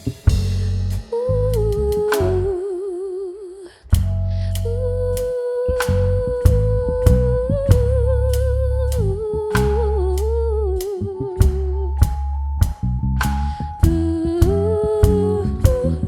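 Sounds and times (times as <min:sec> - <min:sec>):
drums keeping steady beat: 0:00.0 - 0:02.5, 0:04.0 - 0:04.2, 0:05.8 - 0:08.0, 0:09.6 - 0:16.0
bass guitar: 0:00.0 - 0:02.6, 0:03.9 - 0:16.0.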